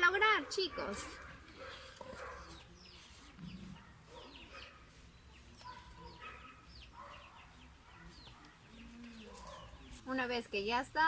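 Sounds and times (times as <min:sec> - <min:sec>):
faint bird chirping: 0:00.6 - 0:11.0.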